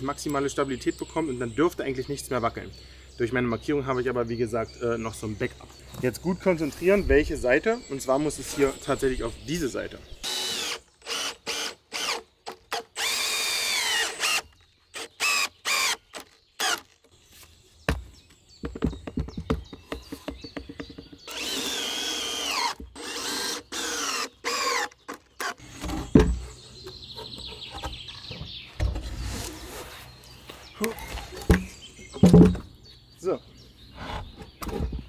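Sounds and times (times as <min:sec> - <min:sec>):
cordless drill driving screws: 0:10.2 - 0:17.0, 0:21.3 - 0:25.8.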